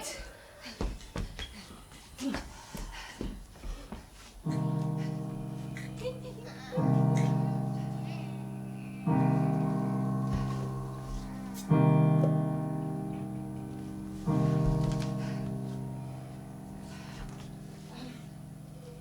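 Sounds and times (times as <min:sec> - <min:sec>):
piano playing slow chords: 0:04.5 - 0:19.0.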